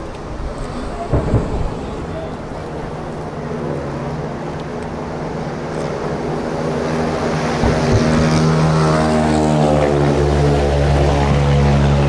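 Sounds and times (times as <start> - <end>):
distant fireworks booming: 0.2 - 4.4, 7.0 - 10.4.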